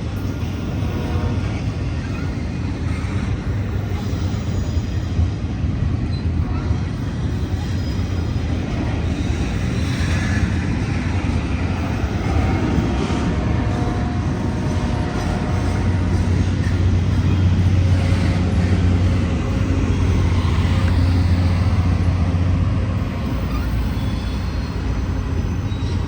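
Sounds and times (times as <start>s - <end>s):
train wheels rumbling on rail: 0.0s - 26.0s
faint high squeals: 11.8s - 26.0s.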